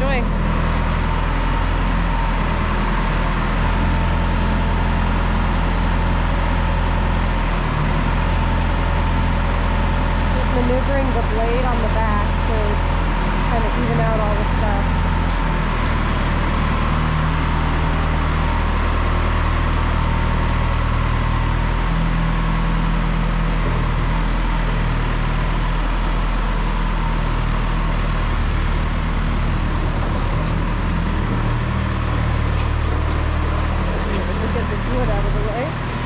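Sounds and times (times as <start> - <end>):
tractor engine running: 0.0 - 36.0.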